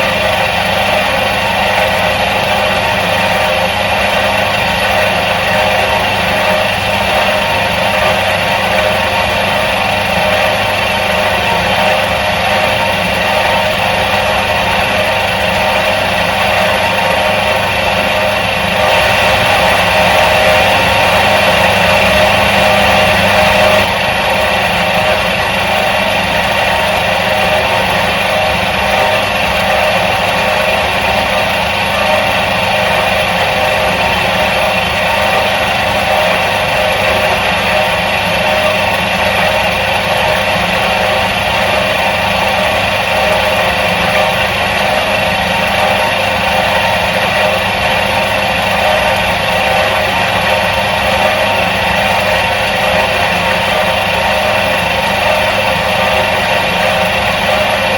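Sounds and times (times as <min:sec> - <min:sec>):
washing machine motor humming: 0:00.0 - 0:57.9.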